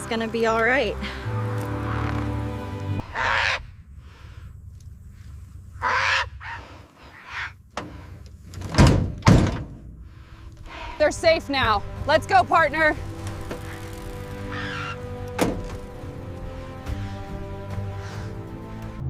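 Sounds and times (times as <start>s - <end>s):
background music: 0.0s - 3.4s, 10.6s - 19.0s
heavy thunks: 7.7s - 10.2s, 15.2s - 16.1s.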